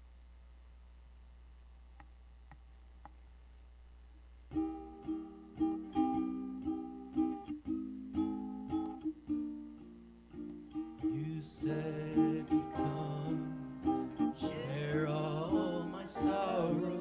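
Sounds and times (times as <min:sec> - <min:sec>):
plucked string instrument strumming: 0:04.5 - 0:17.0.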